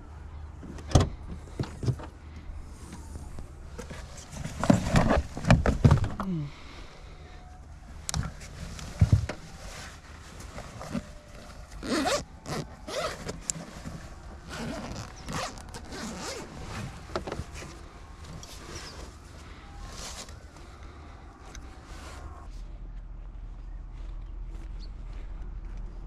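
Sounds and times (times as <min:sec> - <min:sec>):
zipper pulled: 0:11.8 - 0:13.6, 0:14.5 - 0:16.7.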